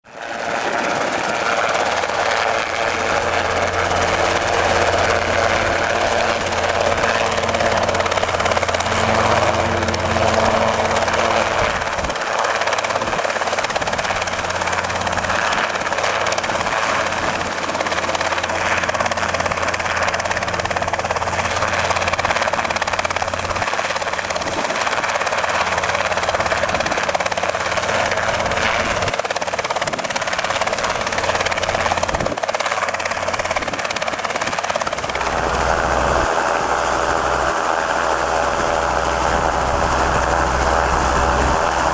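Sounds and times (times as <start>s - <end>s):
helicopter engine and rotor drone: 0.0s - 41.9s
low hum: 2.2s - 12.3s, 34.9s - 41.9s.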